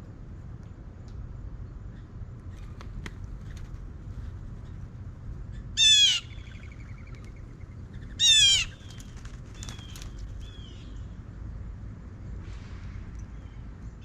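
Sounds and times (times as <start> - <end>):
loud bird calls: 2.5 - 11.0.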